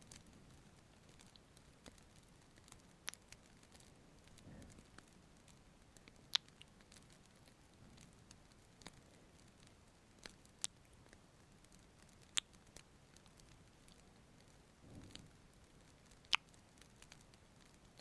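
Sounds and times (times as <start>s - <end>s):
faint steady hiss: 0.0s - 18.0s
lip smacks: 6.3s - 6.7s, 12.2s - 12.6s, 16.2s - 16.5s.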